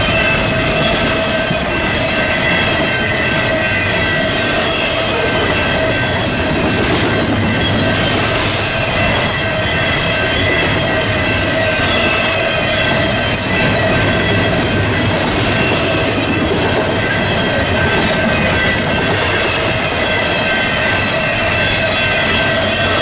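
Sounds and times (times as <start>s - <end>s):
freight train rumbling past: 0.0s - 23.0s
high steady whining tones: 0.0s - 23.0s.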